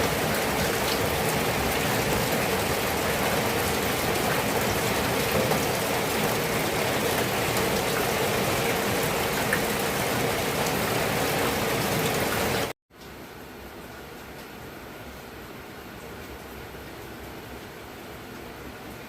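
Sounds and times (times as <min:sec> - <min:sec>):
heavy rain falling: 0:00.0 - 0:12.8.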